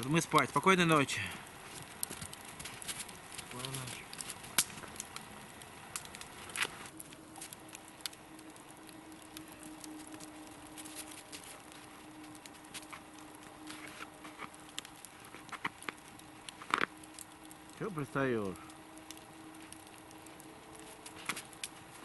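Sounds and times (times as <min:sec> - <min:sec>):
campfire crackling and popping: 0:00.0 - 0:22.0
faint steady tone: 0:06.9 - 0:15.4.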